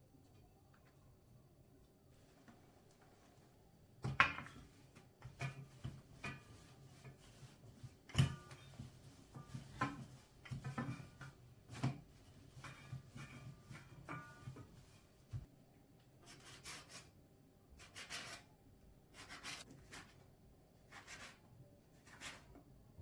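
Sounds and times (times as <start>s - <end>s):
kitchen items knocking and clinking: 4.0s - 7.2s, 7.8s - 15.5s.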